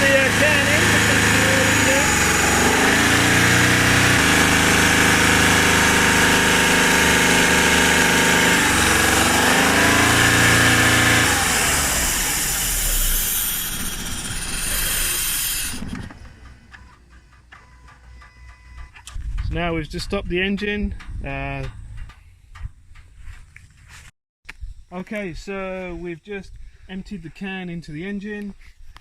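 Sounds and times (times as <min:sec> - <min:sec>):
car engine revving: 0:00.0 - 0:16.7.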